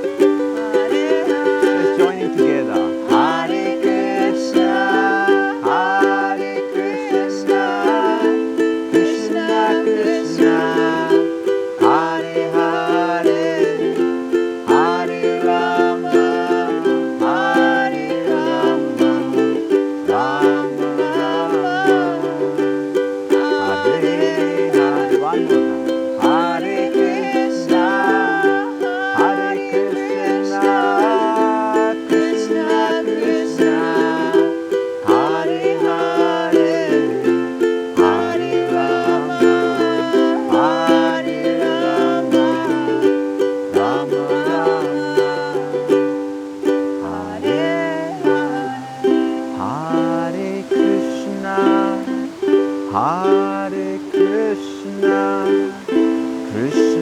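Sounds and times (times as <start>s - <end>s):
ukulele strumming chords: 0.0s - 57.0s
voices chanting: 0.0s - 57.0s.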